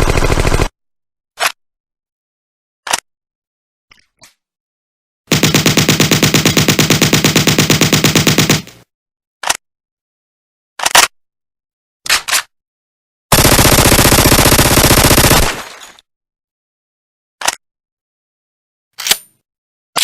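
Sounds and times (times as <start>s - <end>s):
automatic gunfire burst: 0.0s - 0.7s, 5.3s - 8.7s, 13.3s - 15.7s
gunshots: 13.3s - 15.8s.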